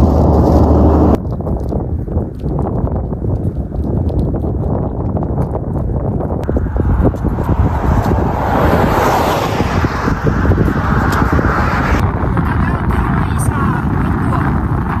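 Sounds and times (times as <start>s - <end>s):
vehicle passing on road: 0.0s - 1.2s, 6.4s - 13.1s
wind buffeting microphone: 0.0s - 15.0s.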